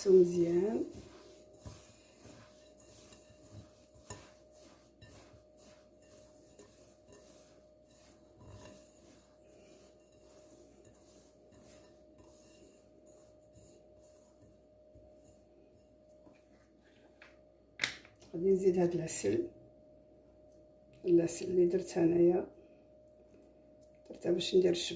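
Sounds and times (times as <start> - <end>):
gritty rubbing of semolina by hand: 0.0 - 15.5.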